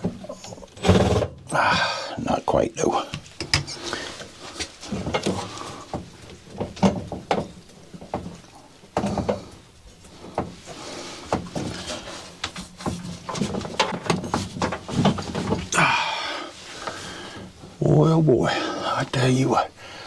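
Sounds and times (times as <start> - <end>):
hand tools knocking and scraping: 3.1 - 3.8, 4.5 - 15.8.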